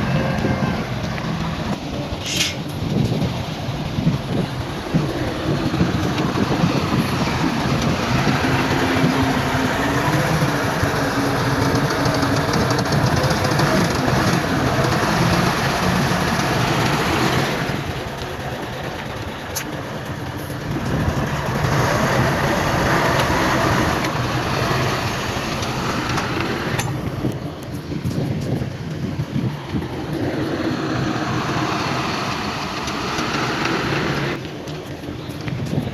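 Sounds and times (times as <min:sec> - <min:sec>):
heavy diesel machinery engine: 0:00.0 - 0:35.9
machinery clanking rattle: 0:00.0 - 0:35.9.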